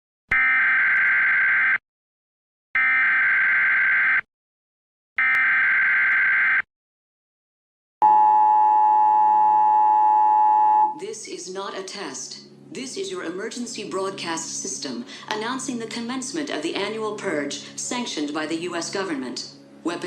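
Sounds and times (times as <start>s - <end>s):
two-tone attention signal: 8.0s - 11.0s.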